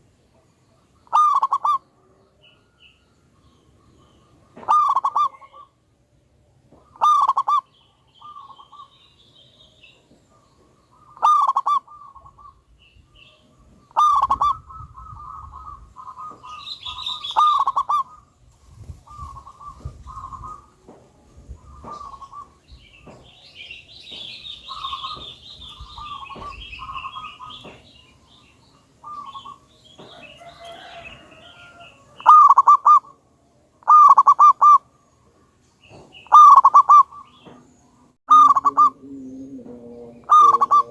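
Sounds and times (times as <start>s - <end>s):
dove cooing: 1.0s - 2.8s, 4.1s - 5.8s, 6.8s - 9.0s, 10.3s - 18.4s, 19.0s - 20.8s, 21.5s - 22.6s, 24.6s - 28.4s, 29.0s - 33.2s, 33.8s - 34.9s, 36.3s - 37.6s, 38.3s - 40.9s
high bird twittering: 2.5s - 5.8s, 6.8s - 20.8s, 21.5s - 33.2s, 35.8s - 40.9s.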